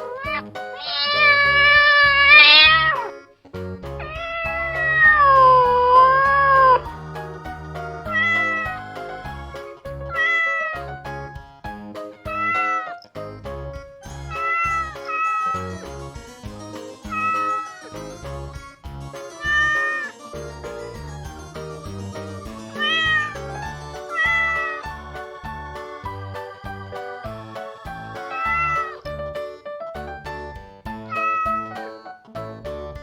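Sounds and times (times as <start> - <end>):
cat meowing: 0.0 - 3.1, 4.0 - 5.8, 12.3 - 12.9
background music with beat: 0.0 - 33.0.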